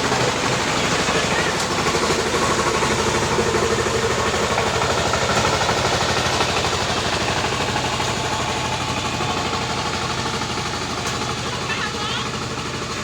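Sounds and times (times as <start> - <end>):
tractor engine chugging: 0.0 - 13.0.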